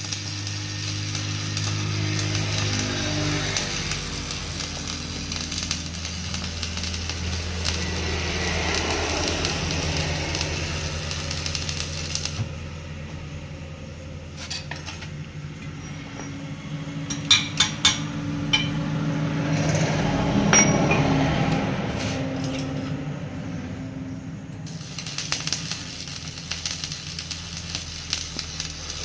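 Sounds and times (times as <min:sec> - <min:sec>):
welding arc crackling: 0:00.0 - 0:14.7, 0:24.6 - 0:29.0
sharp metallic clinks: 0:17.1 - 0:18.8, 0:20.5 - 0:21.2.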